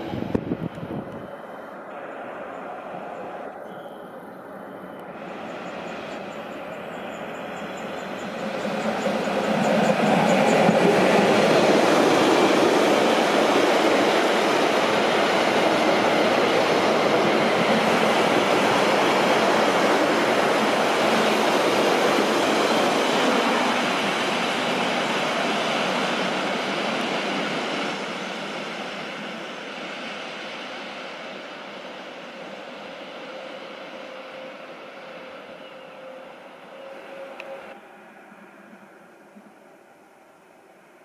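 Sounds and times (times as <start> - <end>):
freight train wheels rumbling: 0.0 - 37.8.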